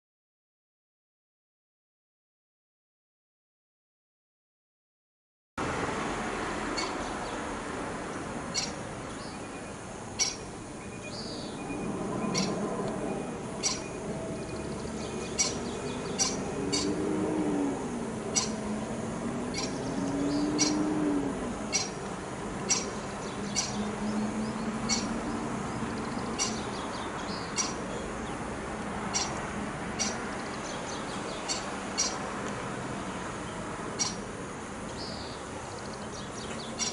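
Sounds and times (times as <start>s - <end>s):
outdoor background: 5.6s - 36.9s
wavering low tone: 11.5s - 22.0s.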